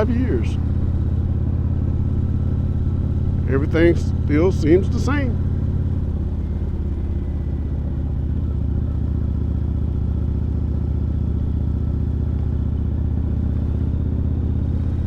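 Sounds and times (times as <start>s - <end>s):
motorcycle engine cruising: 0.0s - 15.0s.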